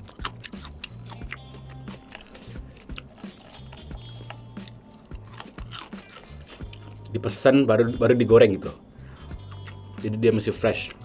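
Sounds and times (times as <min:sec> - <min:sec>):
chewing crispy fried chicken: 0:00.0 - 0:07.3, 0:09.3 - 0:10.2
background music with bass notes: 0:00.0 - 0:11.0.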